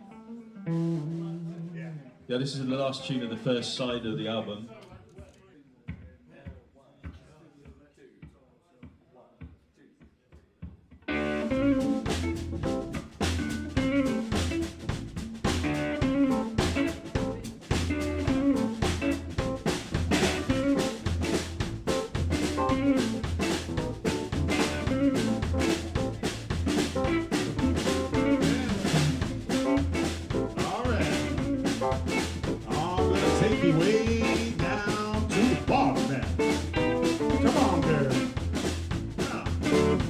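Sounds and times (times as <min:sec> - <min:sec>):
drum kit: 0:00.0 - 0:02.0, 0:10.6 - 0:40.0
live blues band playing: 0:00.0 - 0:02.1, 0:11.1 - 0:40.0.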